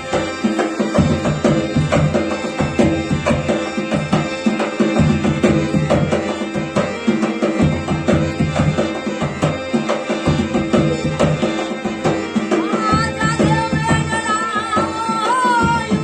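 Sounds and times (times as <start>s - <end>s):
hand drum rhythm: 0.0s - 16.0s
wavering held melody: 11.4s - 16.0s.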